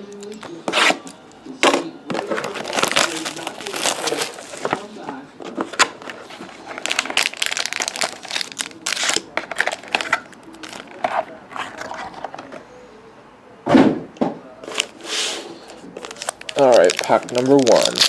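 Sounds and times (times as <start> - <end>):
packaging crinkling and tearing: 2.1 - 12.5, 14.6 - 18.0.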